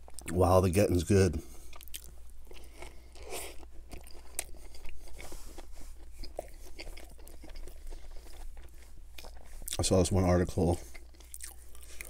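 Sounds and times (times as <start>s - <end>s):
wet chewing: 1.6s - 9.9s, 10.8s - 12.0s
biting into burger crunch: 1.7s - 9.8s.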